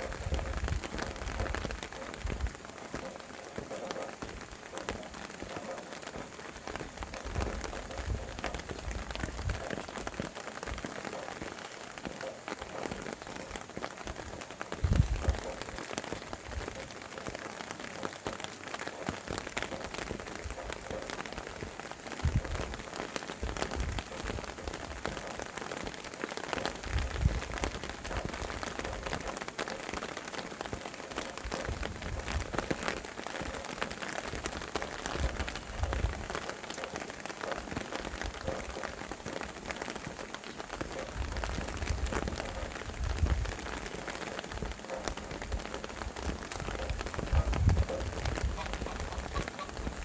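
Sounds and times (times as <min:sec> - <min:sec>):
wind gusts rumbling: 0:00.0 - 0:10.9, 0:14.1 - 0:17.0, 0:21.5 - 0:25.4, 0:26.6 - 0:29.4, 0:40.8 - 0:50.0
raindrops ticking on a surface: 0:00.0 - 0:50.0.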